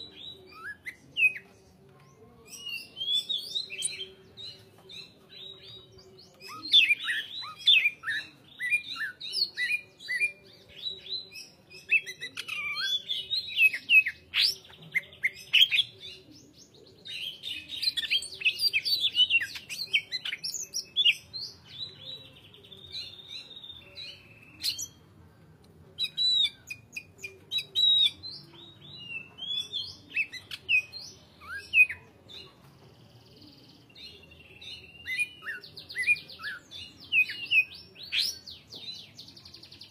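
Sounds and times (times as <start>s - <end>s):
bird singing chirps and trills: 0.0s - 25.0s, 26.0s - 39.9s.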